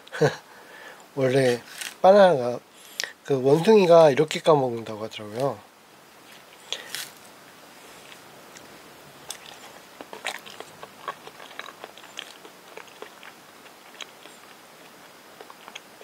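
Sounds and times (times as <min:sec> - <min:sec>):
person chewing banana: 0:09.2 - 0:16.0.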